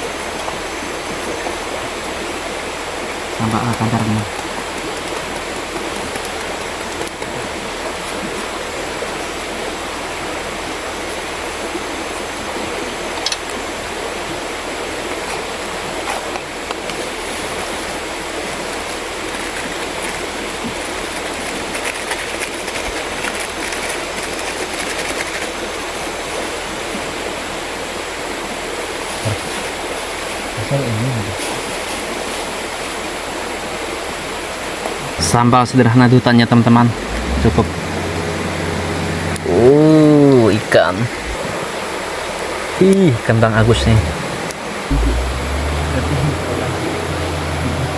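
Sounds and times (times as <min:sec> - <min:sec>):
river flowing: 0:00.0 - 0:30.7, 0:31.4 - 0:47.9.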